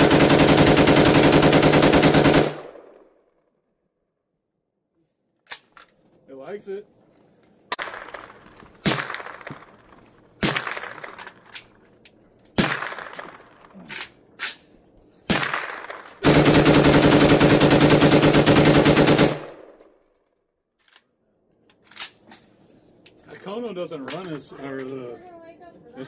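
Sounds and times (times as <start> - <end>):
rapid rifle fire: 0.0 - 2.9, 7.8 - 9.8, 10.4 - 11.2, 12.6 - 13.6, 15.3 - 19.8
rifle single shots: 7.7 - 9.8, 10.4 - 11.5, 12.6 - 13.7, 15.3 - 19.8.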